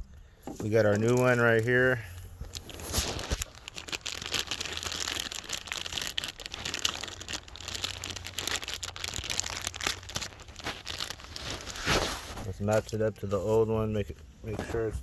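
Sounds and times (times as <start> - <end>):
plastic packaging crinkling: 0.6 - 13.6.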